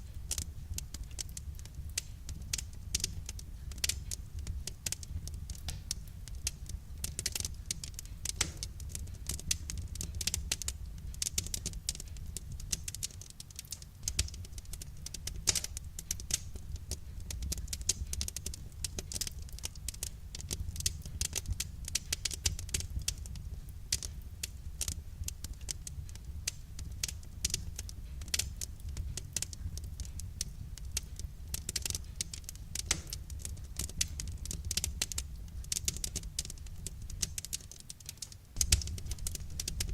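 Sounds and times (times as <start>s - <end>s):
wood fire crackling: 0.0s - 39.9s
low rumble: 38.6s - 39.9s.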